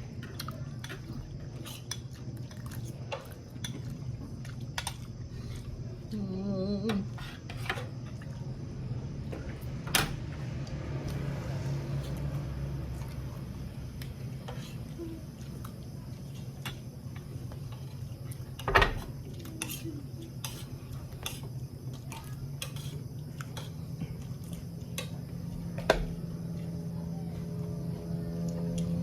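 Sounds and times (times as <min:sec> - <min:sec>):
steady low hum: 0:00.0 - 0:29.0
person humming: 0:06.1 - 0:07.2.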